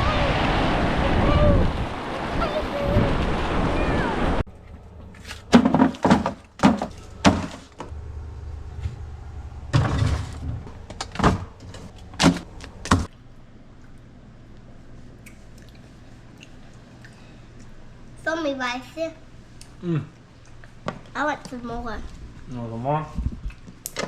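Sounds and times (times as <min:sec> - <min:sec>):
wind buffeting microphone: 0:00.0 - 0:04.4, 0:23.2 - 0:23.5
ocean surf: 0:00.0 - 0:04.5
sharp knocks and clatters: 0:05.1 - 0:07.9.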